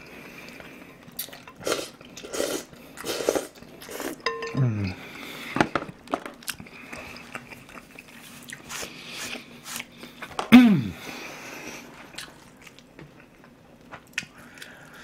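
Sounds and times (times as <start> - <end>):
man chewing crunchy food: 0.2 - 4.2, 6.3 - 10.3, 11.7 - 15.0.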